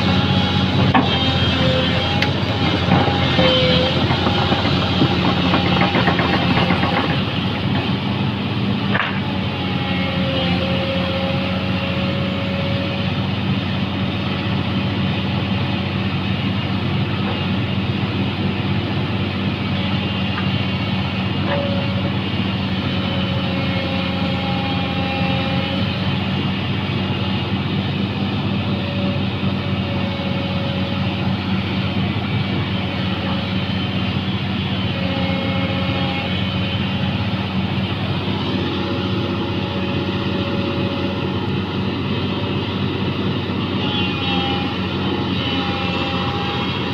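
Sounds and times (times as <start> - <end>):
engine running with low drone: 0.0 - 46.9.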